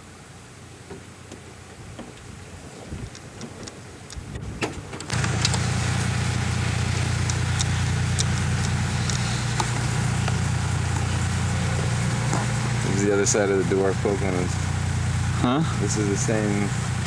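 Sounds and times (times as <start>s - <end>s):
vehicle engine droning: 5.0s - 17.0s.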